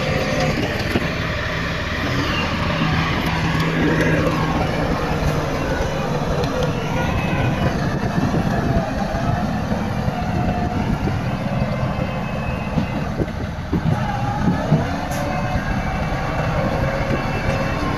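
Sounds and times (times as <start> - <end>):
heavy diesel machinery engine: 0.0 - 17.9.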